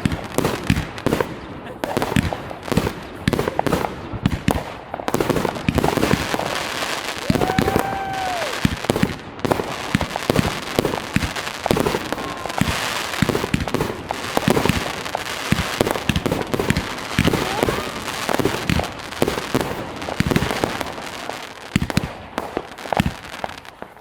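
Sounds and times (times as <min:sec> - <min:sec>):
fireworks bangs and crackles: 0:00.0 - 0:24.0
firework whistling tone: 0:05.8 - 0:19.6.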